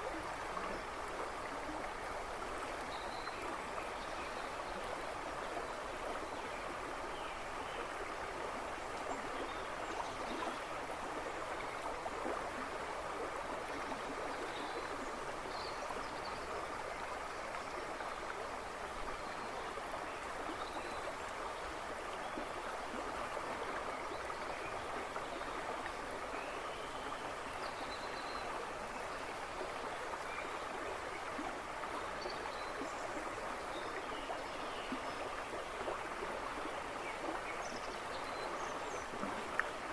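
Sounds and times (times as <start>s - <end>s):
brook babbling over stones: 0.0s - 39.9s.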